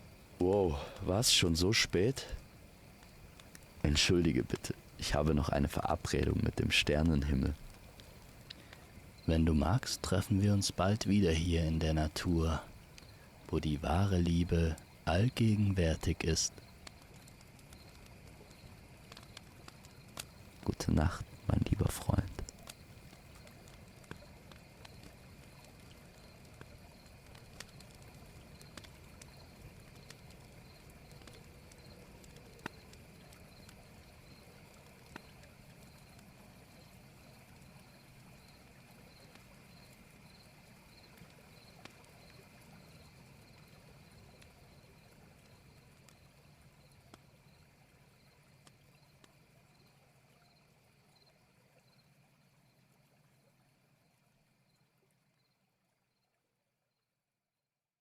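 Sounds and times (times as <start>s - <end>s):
flowing water murmur: 0.0s - 55.3s
small clicks: 2.3s - 3.8s, 16.5s - 33.8s.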